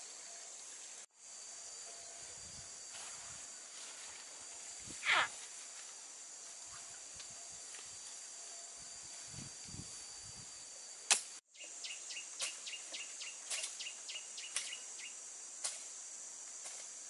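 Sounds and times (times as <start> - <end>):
high insect buzz: 0.0 - 17.0.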